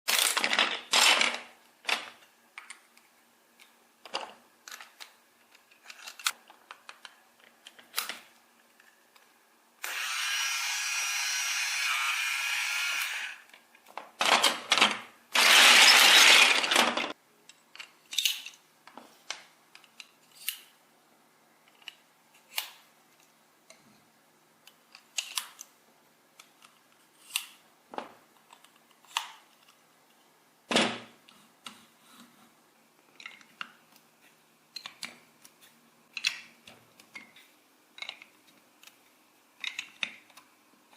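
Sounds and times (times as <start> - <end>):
small parts clicking: 3.6 - 10.1, 12.6 - 18.6, 39.6 - 40.9
small tool running: 9.8 - 13.4, 15.4 - 17.1.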